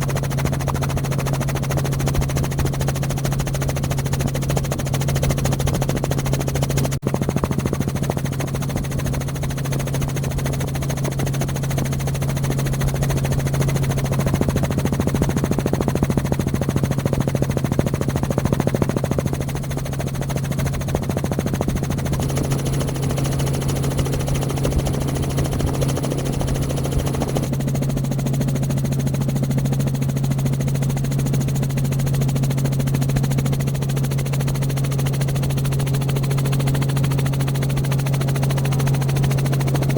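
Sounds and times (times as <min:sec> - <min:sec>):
loud engine drone: 0:22.1 - 0:27.5.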